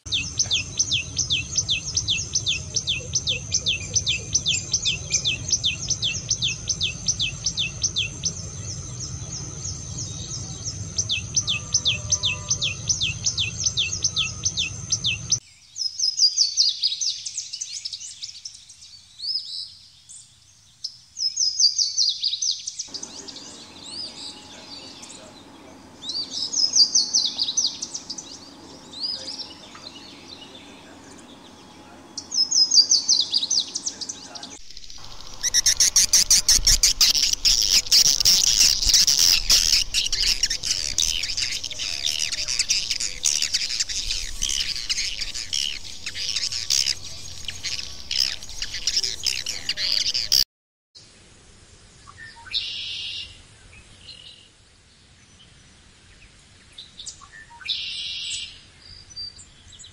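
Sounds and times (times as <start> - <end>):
bird chirping and warbling song: 0.0 - 20.3, 21.2 - 50.4
bird calls downward-sliding notes: 22.9 - 50.4.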